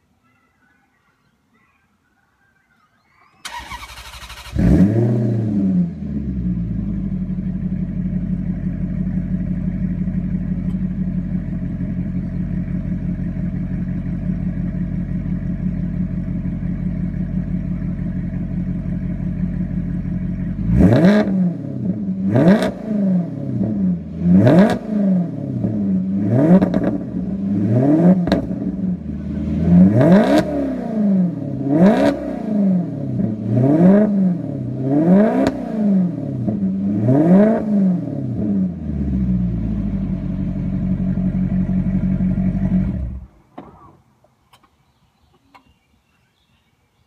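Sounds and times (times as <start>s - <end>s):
car starter cranking: 3.4s - 4.8s
car engine revving and idling: 3.5s - 43.9s.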